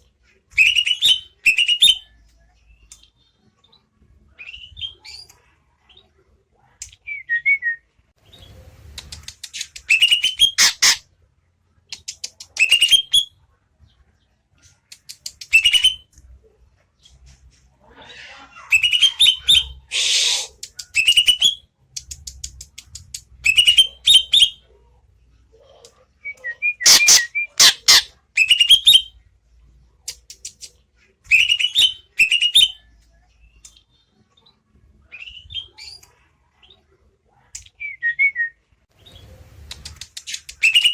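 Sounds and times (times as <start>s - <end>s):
bird sharp clicks: 8.9s - 10.0s, 39.6s - 40.9s.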